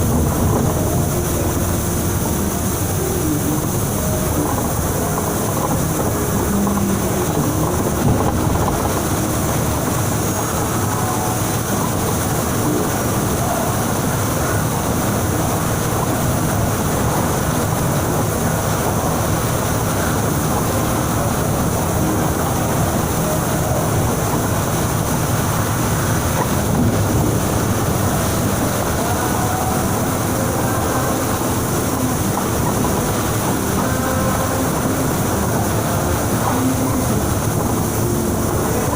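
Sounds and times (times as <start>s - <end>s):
bus engine and tyres droning: 0.0s - 38.9s
heavy rain: 0.0s - 38.9s
strong wind: 0.0s - 38.9s.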